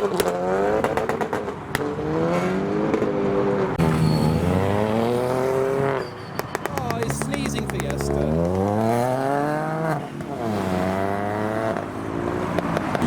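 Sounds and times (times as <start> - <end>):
car engines revving: 0.0 - 13.0
exhaust crackles: 3.8 - 10.9.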